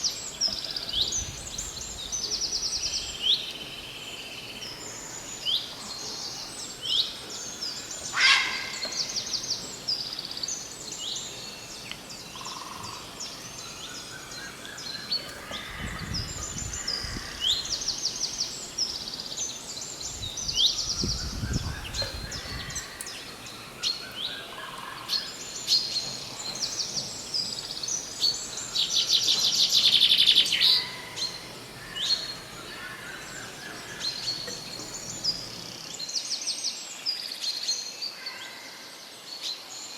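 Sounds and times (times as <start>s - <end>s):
dense bird trill: 0.0s - 36.0s
small birds chirping: 0.0s - 36.2s
low rumbles: 6.6s - 36.0s.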